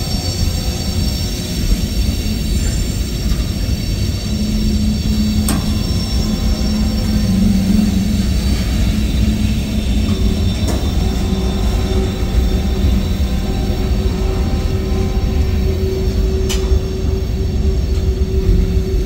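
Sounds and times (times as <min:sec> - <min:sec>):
low hum: 0:00.0 - 0:19.0
train wheels rumbling on rail: 0:00.0 - 0:19.0.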